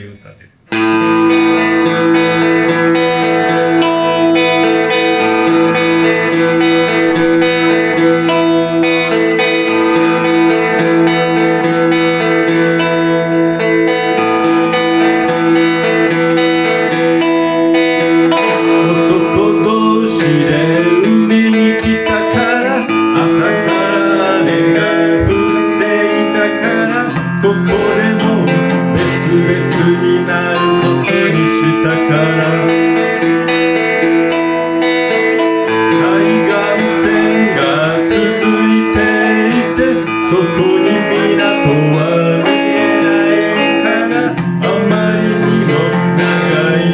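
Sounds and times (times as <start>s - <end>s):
electric guitar solo: 0.0s - 46.9s.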